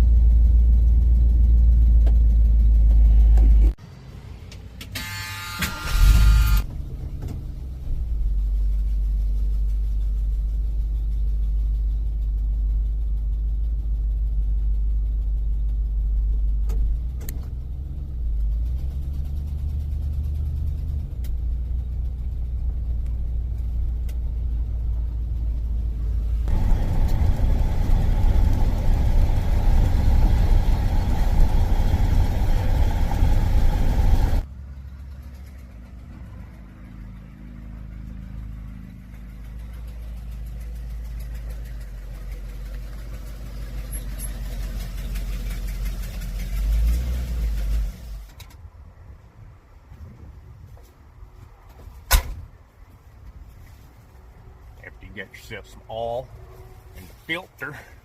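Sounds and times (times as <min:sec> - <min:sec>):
car engine running: 0:00.0 - 0:03.9, 0:04.6 - 0:48.3.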